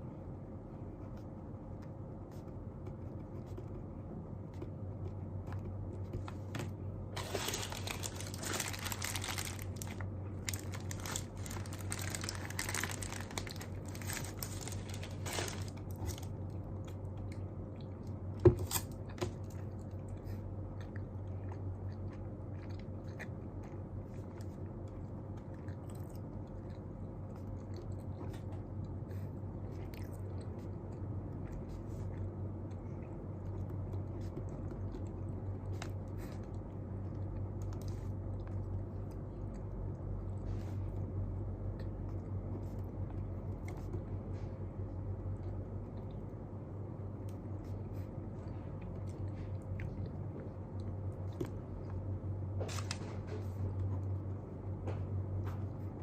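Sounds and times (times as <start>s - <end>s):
low room hum: 0.0s - 56.0s.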